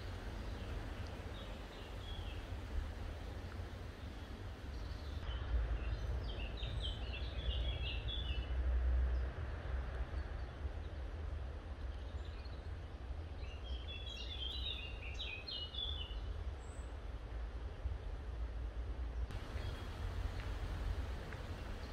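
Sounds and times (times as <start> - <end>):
bird chirping: 0.0 - 2.6, 19.3 - 21.9
low rumble: 19.3 - 21.9.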